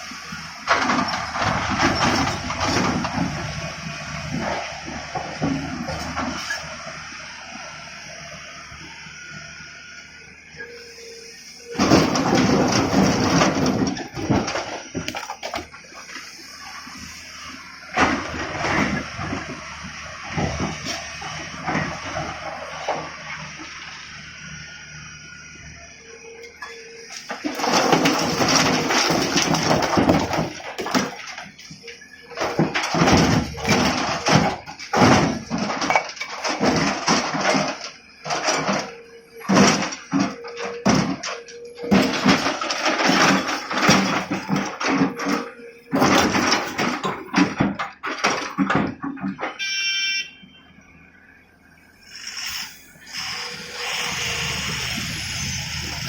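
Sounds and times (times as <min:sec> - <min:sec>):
excavator engine hum: 0:00.0 - 0:56.0
stone clattering into truck: 0:11.8 - 0:15.7, 0:27.2 - 0:31.8, 0:32.4 - 0:49.6.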